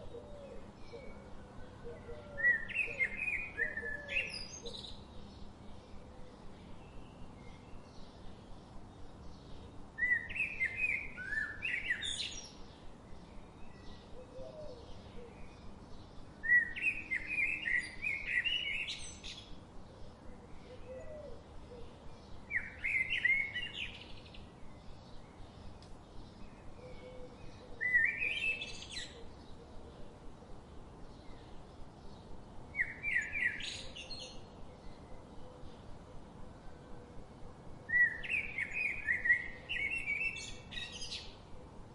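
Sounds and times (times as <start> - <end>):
faint bird chirps: 16.4 - 30.0.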